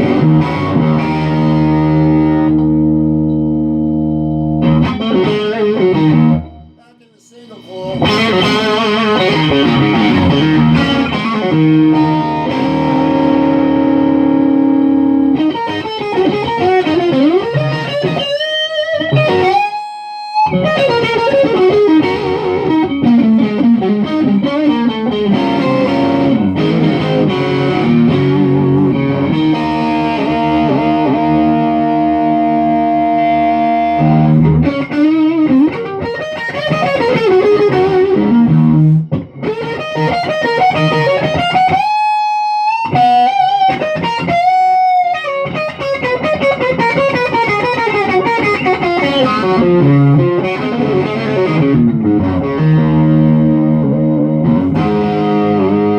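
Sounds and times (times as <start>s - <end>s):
electric guitar solo: 0.0s - 55.9s.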